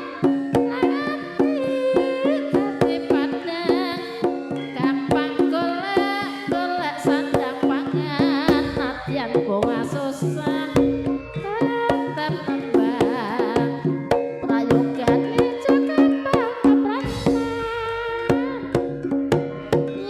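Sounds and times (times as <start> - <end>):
hand drums beating: 0.0 - 20.0
sustained pitched instruments: 7.9 - 20.0
wavering melody line: 7.9 - 20.0.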